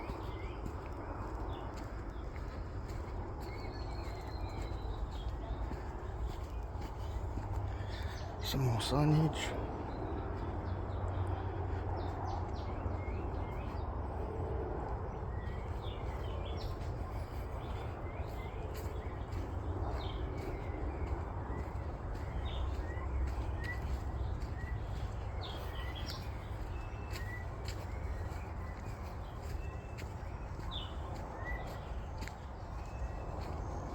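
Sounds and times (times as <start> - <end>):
forest birds chirping and whistling: 1.8 - 10.5, 15.3 - 33.9.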